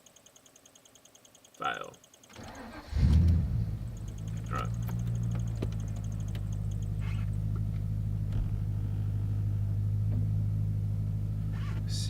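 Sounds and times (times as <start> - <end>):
car engine idling: 2.4 - 12.0.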